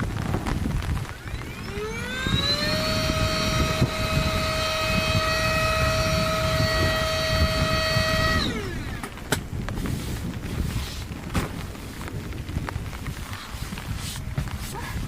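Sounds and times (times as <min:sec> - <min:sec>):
electric air pump whining: 0:01.0 - 0:09.2.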